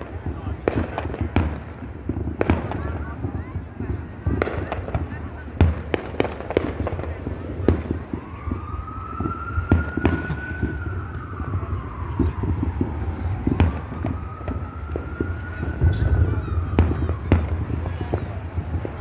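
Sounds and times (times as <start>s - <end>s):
fireworks banging: 0.0s - 19.0s
siren wailing: 6.2s - 19.0s.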